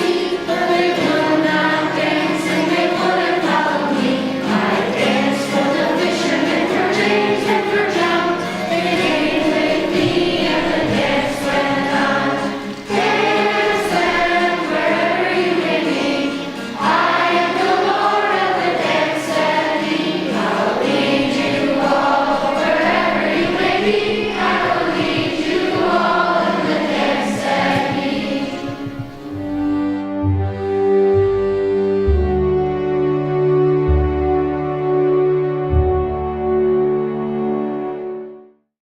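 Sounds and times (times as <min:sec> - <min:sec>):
choir singing: 0:00.0 - 0:30.6
instrumental accompaniment: 0:00.0 - 0:38.5.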